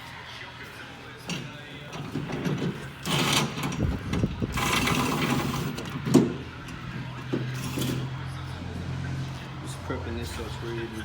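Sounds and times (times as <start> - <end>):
scraping on steel: 1.3 - 8.3.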